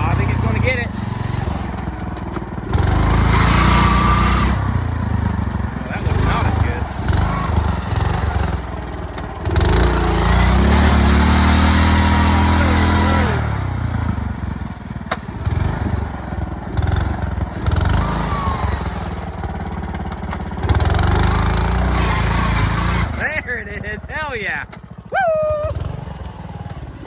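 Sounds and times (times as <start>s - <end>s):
lawn tractor engine at high revs: 0.0s - 27.0s.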